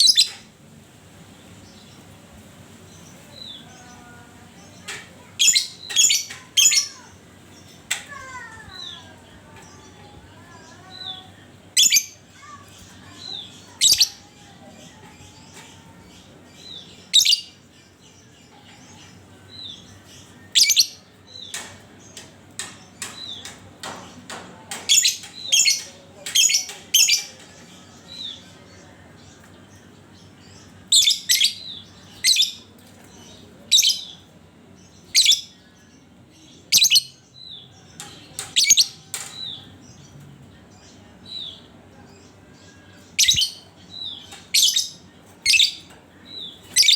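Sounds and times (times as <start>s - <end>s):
lovebird chirping: 43.2s - 45.8s, 46.4s - 46.9s.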